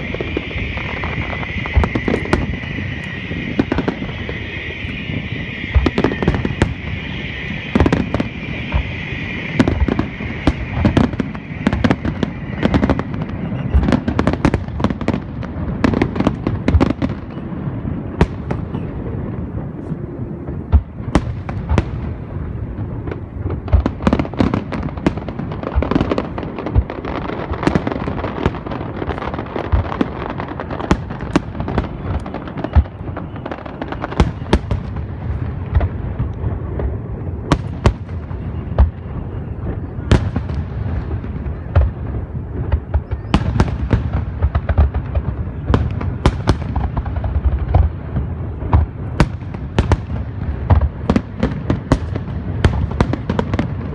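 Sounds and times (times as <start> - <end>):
steady high hiss: 0.0 - 14.0
fireworks bursts and bangs: 0.0 - 53.9.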